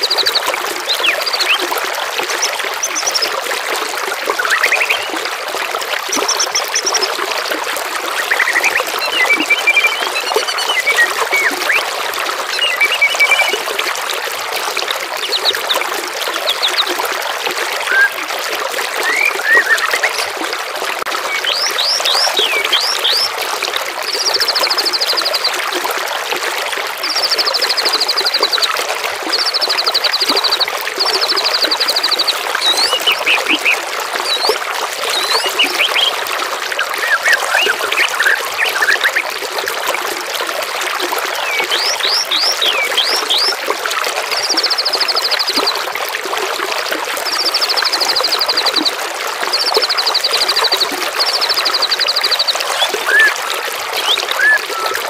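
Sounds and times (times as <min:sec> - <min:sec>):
songbirds whistling: 0:00.0 - 0:03.4, 0:04.3 - 0:05.2, 0:08.2 - 0:11.9, 0:12.5 - 0:13.6, 0:17.9 - 0:18.2, 0:19.0 - 0:20.3, 0:21.3 - 0:23.3, 0:29.3 - 0:36.2, 0:36.8 - 0:39.3, 0:41.3 - 0:43.6, 0:49.5 - 0:55.0
trickling water: 0:00.0 - 0:55.0.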